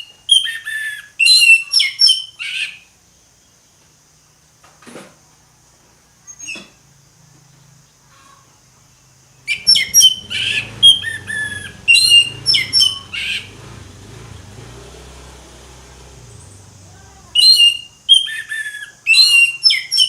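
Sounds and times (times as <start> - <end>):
thrush singing: 9.5 - 18.2.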